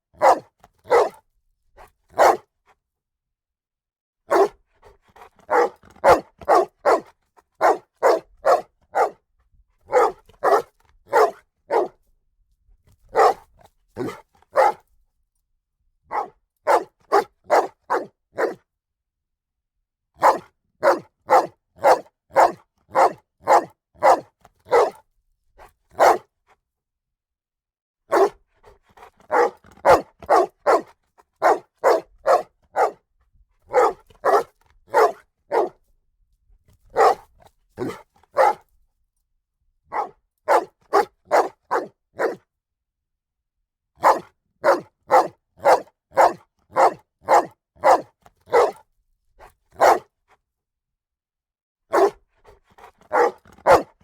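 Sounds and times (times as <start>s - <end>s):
dog barking: 0.2s - 1.2s, 2.1s - 2.5s, 4.3s - 9.2s, 9.9s - 12.0s, 13.1s - 14.8s, 16.1s - 18.6s, 20.2s - 25.0s, 25.9s - 26.3s, 28.1s - 33.0s, 33.7s - 35.8s, 36.9s - 38.7s, 39.9s - 42.4s, 44.0s - 48.8s, 49.4s - 50.2s, 51.9s - 54.0s.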